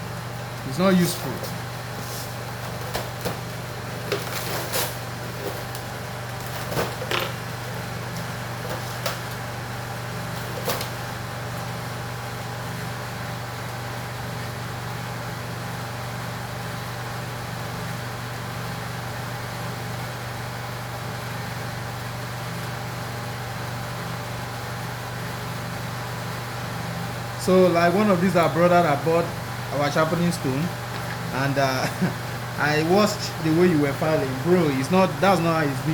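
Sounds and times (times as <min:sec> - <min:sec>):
low machine hum: 0:00.0 - 0:35.9.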